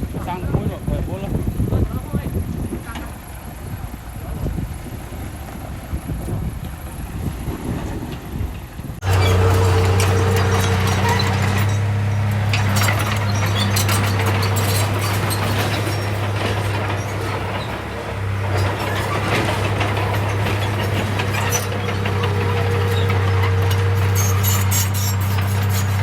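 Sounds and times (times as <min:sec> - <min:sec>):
diesel machine engine running: 0:00.0 - 0:26.0
metal clanks and rattles: 0:07.6 - 0:26.0.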